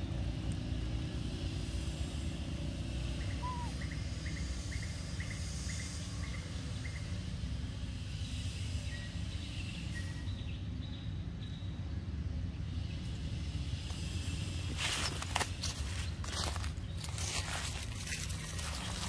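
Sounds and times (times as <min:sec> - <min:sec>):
low outdoor rumble: 0:00.0 - 0:19.0
bird chirping: 0:03.1 - 0:07.2, 0:16.0 - 0:19.0.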